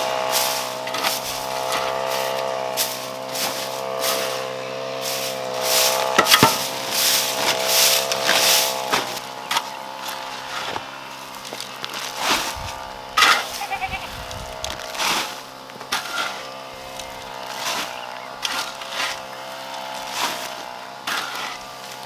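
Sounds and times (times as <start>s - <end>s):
knocks and scrapes of work: 0.2s - 13.6s, 14.8s - 16.5s, 17.5s - 22.0s
goats bleating: 13.2s - 14.8s.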